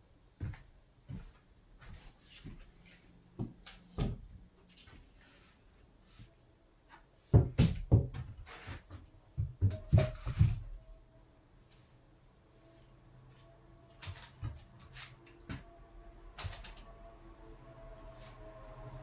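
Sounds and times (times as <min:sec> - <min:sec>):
door frame knocks and clunks: 0:07.3 - 0:08.4.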